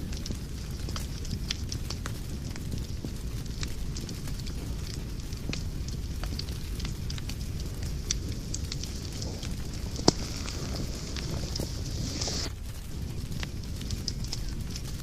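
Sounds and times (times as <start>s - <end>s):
fire crackling in a fireplace: 0.0s - 15.0s.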